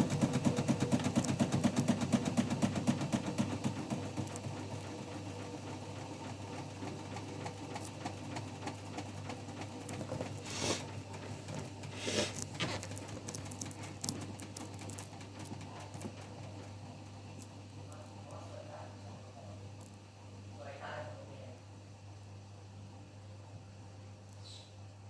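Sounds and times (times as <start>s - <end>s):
small clicks and rattles: 0.0s - 5.4s, 6.8s - 18.4s
washing machine hum: 0.0s - 25.0s.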